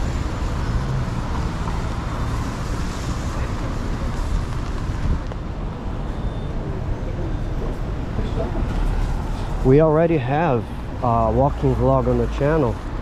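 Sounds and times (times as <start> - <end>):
wind noise on microphone: 0.0 - 6.3
traffic on a wet street: 0.0 - 13.0.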